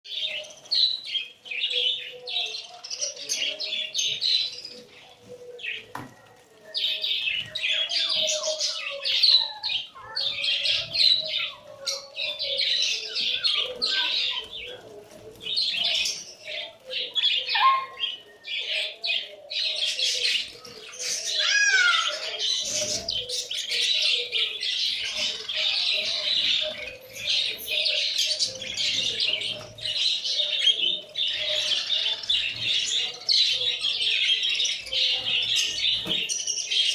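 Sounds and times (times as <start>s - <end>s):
parrots chattering: 17.4s - 18.1s, 21.2s - 23.5s.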